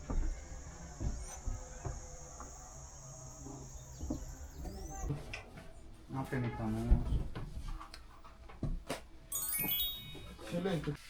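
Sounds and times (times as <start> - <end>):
high-pitched insect drone: 0.5 - 5.1.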